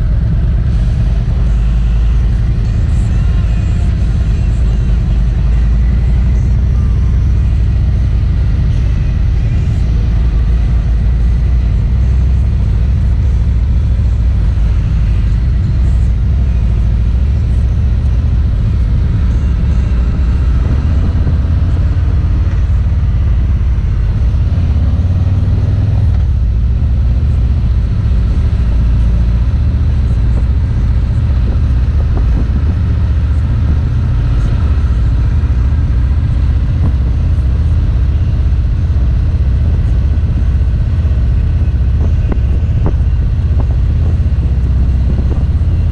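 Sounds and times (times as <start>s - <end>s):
motorcycle engine rumbling: 0.0s - 45.9s.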